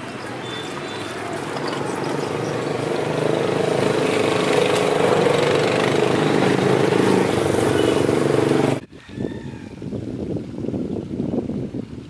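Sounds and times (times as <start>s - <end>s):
engine running: 0.0s - 8.8s.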